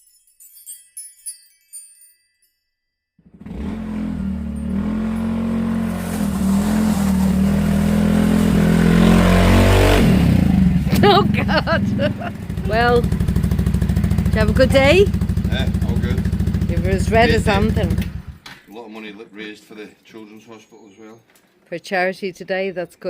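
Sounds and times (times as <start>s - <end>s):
light tinkling chimes: 0.0s - 3.1s
motorbike engine running: 3.2s - 18.4s.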